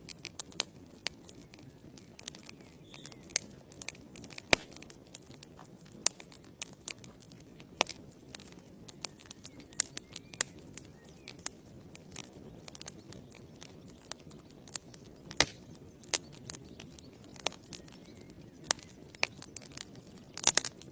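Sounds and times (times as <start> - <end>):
logs crackling and popping: 0.0 - 20.9
low hiss of flames: 2.4 - 11.9, 15.4 - 15.9.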